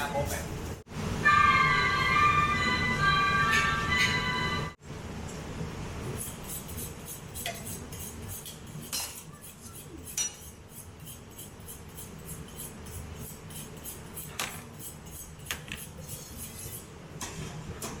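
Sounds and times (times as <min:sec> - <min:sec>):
cutlery and crockery clinking: 0:08.8 - 0:10.5.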